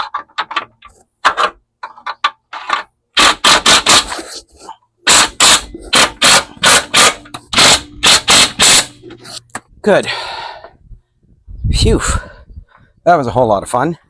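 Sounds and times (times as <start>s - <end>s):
impact gun hammering bolt: 5.1s - 9.0s.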